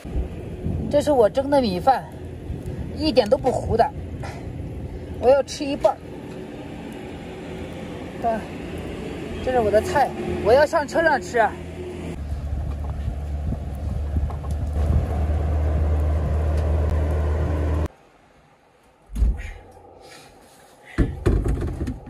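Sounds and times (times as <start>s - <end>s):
heavy rain rumbling: 0.0s - 18.1s
dull thump: 19.1s - 19.6s, 20.9s - 22.0s
knock: 21.0s - 22.0s.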